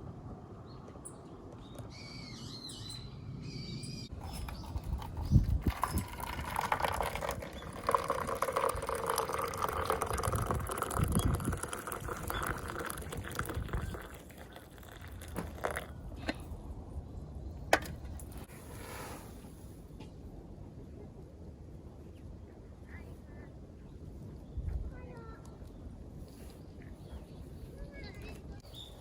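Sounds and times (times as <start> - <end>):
liquid pouring into container: 4.2 - 15.9.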